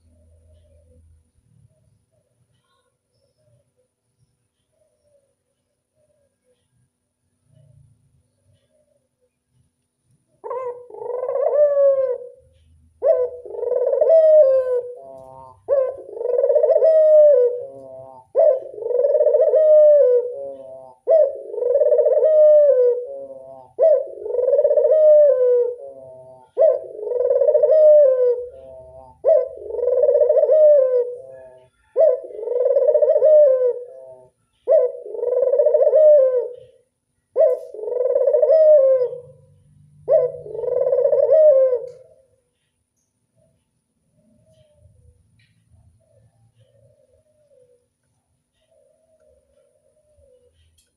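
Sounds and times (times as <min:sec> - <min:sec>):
dove cooing: 0:10.3 - 0:42.4, 0:43.4 - 0:50.9.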